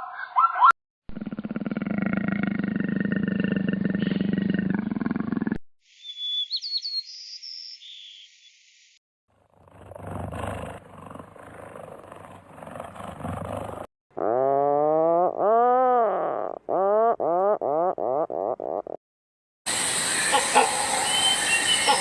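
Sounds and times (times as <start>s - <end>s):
animal calls: 20.2s - 22.0s.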